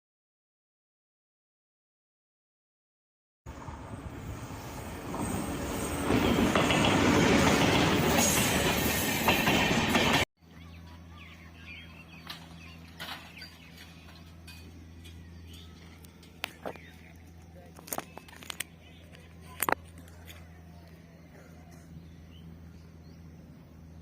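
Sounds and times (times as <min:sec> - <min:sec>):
train passing close by: 0:03.5 - 0:10.3
wheels clattering over rail joints: 0:03.6 - 0:10.3, 0:11.9 - 0:20.9
steady low hum: 0:10.4 - 0:24.0.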